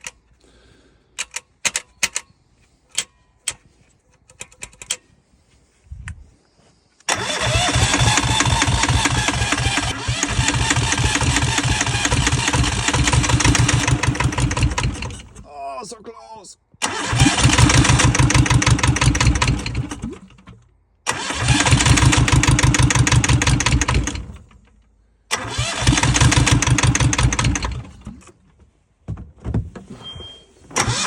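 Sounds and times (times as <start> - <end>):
sharp clicks and knocks: 1.2 - 2.3, 2.9 - 5.1
diesel engine cranking: 7.1 - 15.5, 16.8 - 28.4, 30.7 - 31.0.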